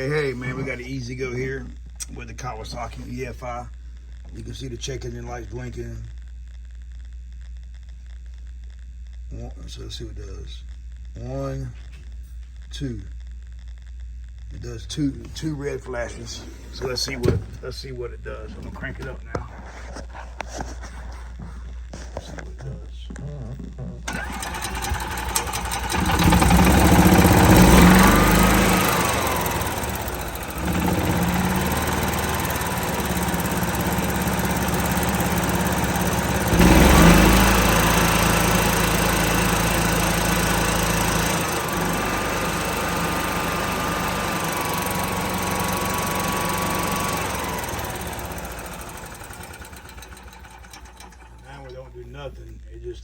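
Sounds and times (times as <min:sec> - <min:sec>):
golf cart engine revving: 0:00.0 - 0:00.8, 0:24.1 - 0:51.6
starter cranking engine: 0:24.1 - 0:51.8.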